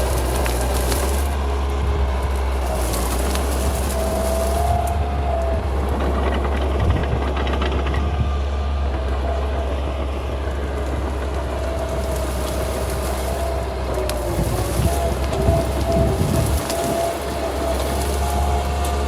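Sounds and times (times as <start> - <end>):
bulldozer diesel engine running: 0.0 - 19.0
wavering high whine: 7.9 - 19.0.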